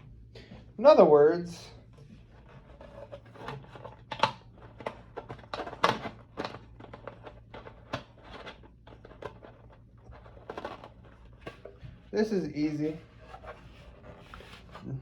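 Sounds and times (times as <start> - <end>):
faint low hum: 0.0 - 15.0
plastic parts clicking and knocking: 2.5 - 12.1.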